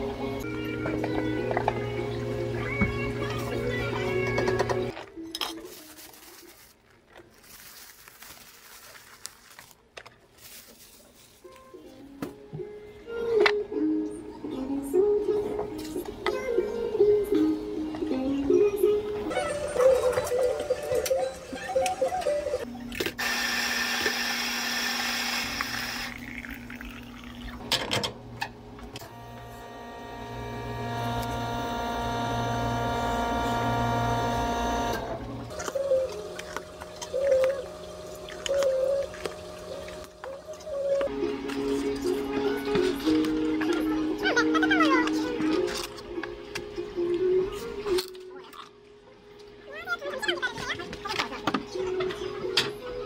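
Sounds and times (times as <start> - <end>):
background music: 0.0 - 5.7, 11.4 - 22.7, 29.0 - 48.9
espresso machine pump humming: 23.2 - 27.5, 29.0 - 36.3
hot water rushing into cup: 23.2 - 27.6.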